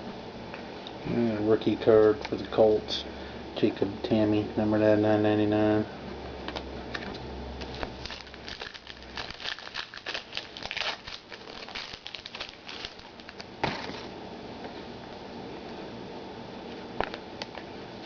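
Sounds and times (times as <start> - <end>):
card packs crinkling and rustling: 7.6 - 14.1.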